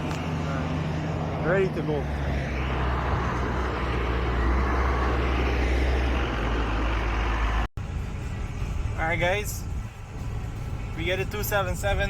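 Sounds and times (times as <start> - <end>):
vehicle engine under load: 0.0 - 9.0
road and tyre noise: 0.0 - 12.0.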